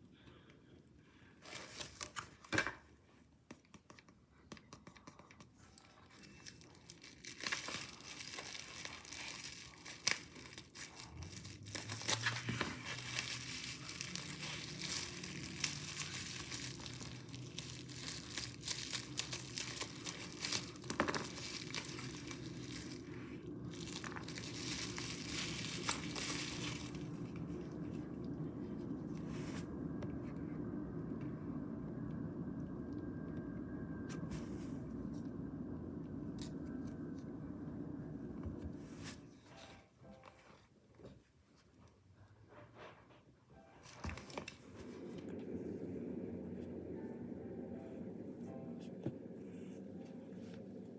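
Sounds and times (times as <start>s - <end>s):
plastic packaging crinkling and tearing: 1.4s - 2.5s, 5.8s - 28.4s, 43.8s - 45.5s
steady low hum: 6.5s - 40.0s, 42.1s - 50.9s.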